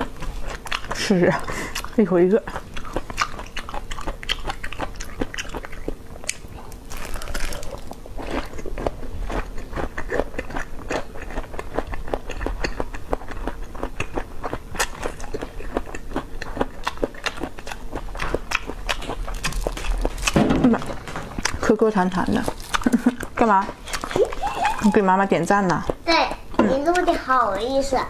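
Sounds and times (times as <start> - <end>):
chewing clicks and smacks: 1.8 - 20.4, 22.4 - 24.8.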